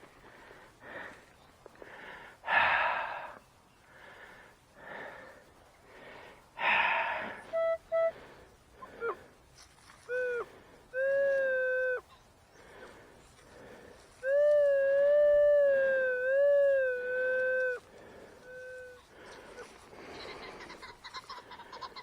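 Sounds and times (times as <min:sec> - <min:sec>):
loud breathy rasps: 0:01.8 - 0:09.3.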